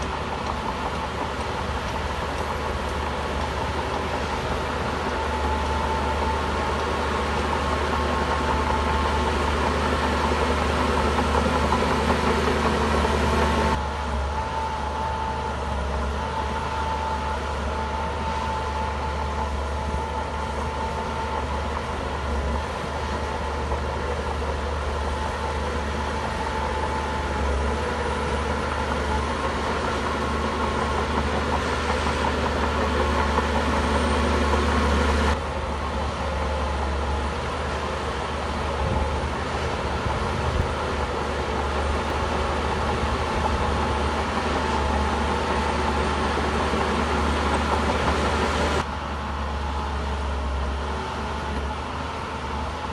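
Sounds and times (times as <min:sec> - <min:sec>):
bulldozer diesel engine running: 0:00.0 - 0:52.9.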